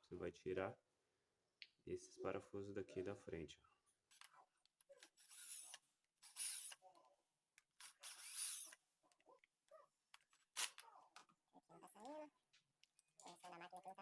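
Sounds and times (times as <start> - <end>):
screws scraping and squeaking: 4.1 - 7.0, 7.8 - 8.8.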